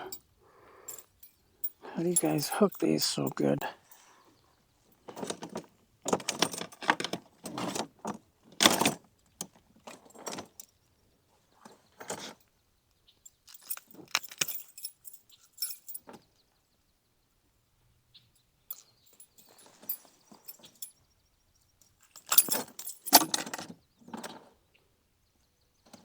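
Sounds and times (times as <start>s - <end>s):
metal fishing tackle clinking: 0.8s - 3.9s, 13.5s - 16.0s, 22.1s - 23.5s.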